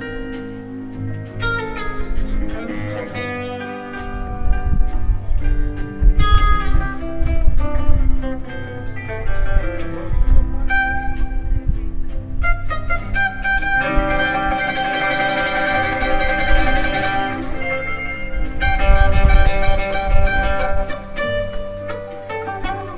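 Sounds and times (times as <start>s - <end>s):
live country band music: 0.0s - 22.9s.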